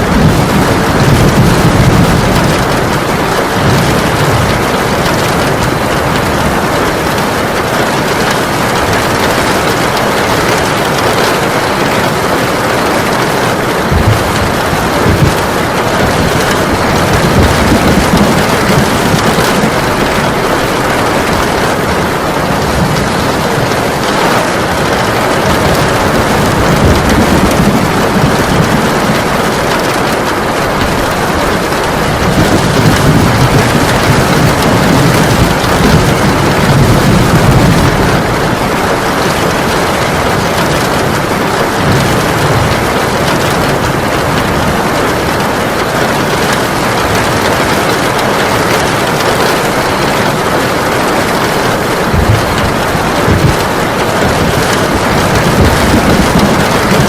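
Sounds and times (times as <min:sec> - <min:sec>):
heavy rain pouring: 0:00.0 - 0:57.0
rolling thunder: 0:00.0 - 0:57.0.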